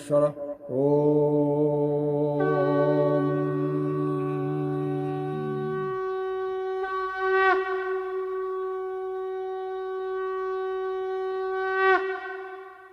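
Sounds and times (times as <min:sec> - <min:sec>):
conch shell blown: 0:01.8 - 0:12.9.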